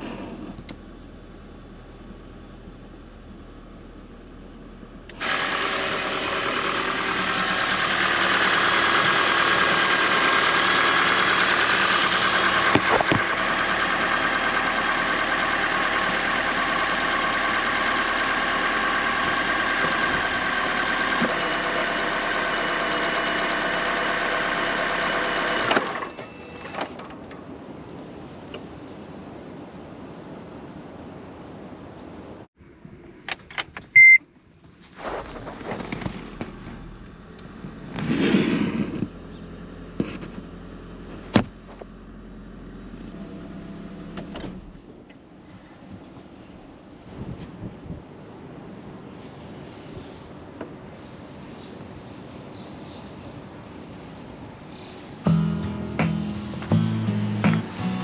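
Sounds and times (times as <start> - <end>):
car engine starting and running: 0.0 - 27.6, 33.3 - 45.4, 54.8 - 58.0.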